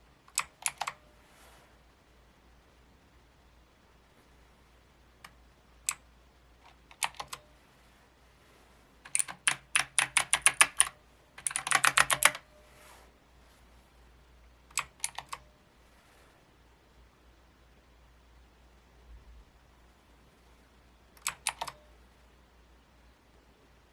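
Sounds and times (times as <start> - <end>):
mechanical keyboard keys clicking: 0.3 - 1.0, 6.6 - 7.5, 9.1 - 12.5, 14.7 - 15.4, 21.2 - 21.8.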